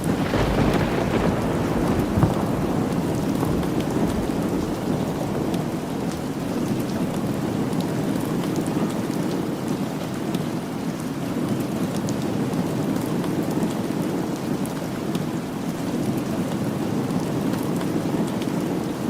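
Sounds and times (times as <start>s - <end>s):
low rumble of thunder: 0.0s - 8.4s
steady rain: 0.0s - 19.0s.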